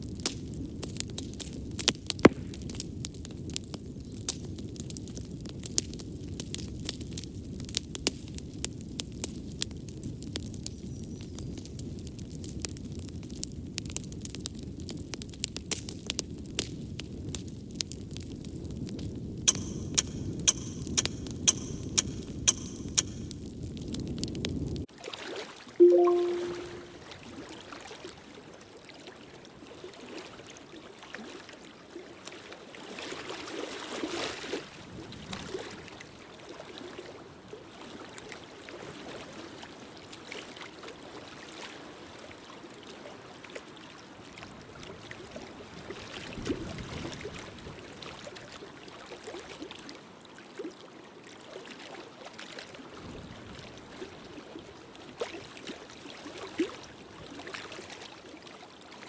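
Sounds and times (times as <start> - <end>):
fireplace fire crackling: 19.5 - 23.4.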